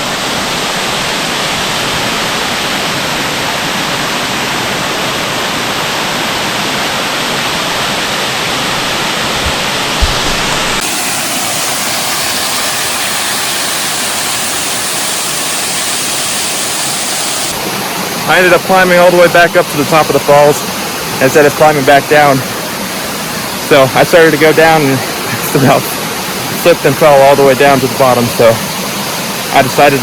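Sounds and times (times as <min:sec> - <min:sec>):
waterfall rushing: 0:07.0 - 0:18.6.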